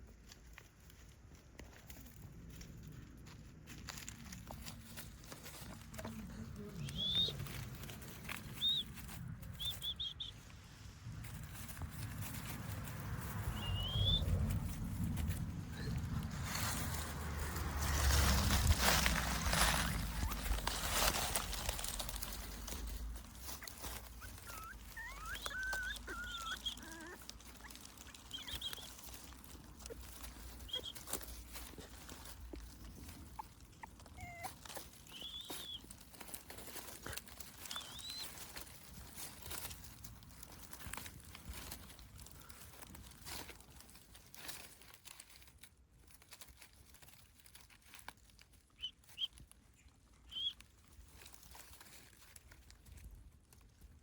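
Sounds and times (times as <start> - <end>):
faint crackling and rustling: 0.0 - 54.0
soft scattered patter: 0.0 - 54.0
high-pitched animal chirps: 6.8 - 7.5, 8.6 - 10.4, 24.2 - 28.9, 33.4 - 35.9, 50.3 - 50.6.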